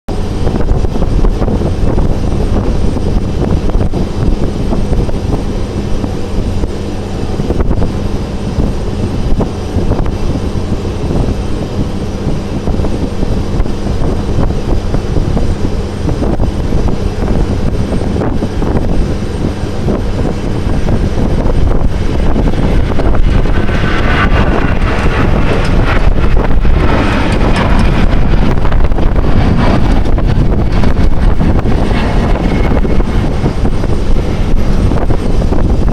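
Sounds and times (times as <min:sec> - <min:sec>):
jet airliner landing rumble: 0:00.0 - 0:35.9
low hum: 0:00.1 - 0:35.9
high-pitched rushing sound: 0:16.6 - 0:35.9.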